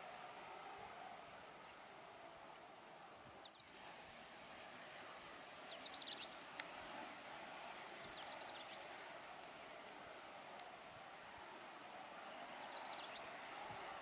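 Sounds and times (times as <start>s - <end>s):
faint steady background noise: 0.0s - 14.0s
small birds chirping: 2.5s - 3.9s, 4.8s - 14.0s.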